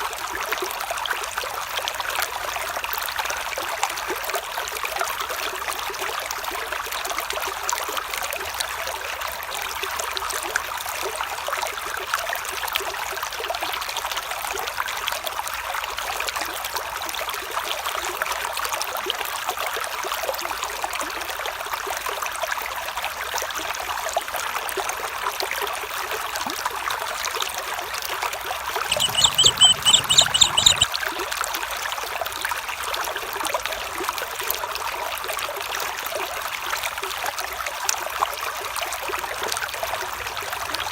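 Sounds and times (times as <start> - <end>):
small stream trickling: 0.0 - 40.9
rapid high-pitched trill: 28.9 - 30.9.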